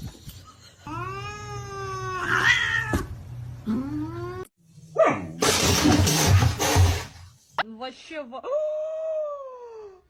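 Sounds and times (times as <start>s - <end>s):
cat meowing: 2.0s - 3.0s.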